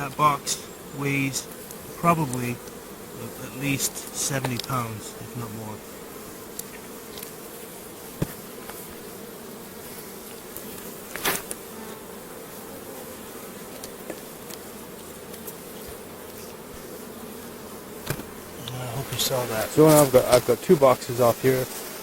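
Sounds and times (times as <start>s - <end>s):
honeybees buzzing: 0.0s - 22.0s
sharp knocks: 8.2s - 8.4s, 18.0s - 18.3s.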